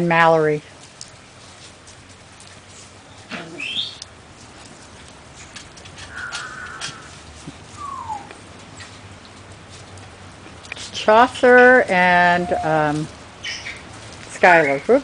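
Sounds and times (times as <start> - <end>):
falling rain hiss: 0.0 - 15.0
puppies yipping and whining: 6.2 - 9.0, 12.2 - 12.8.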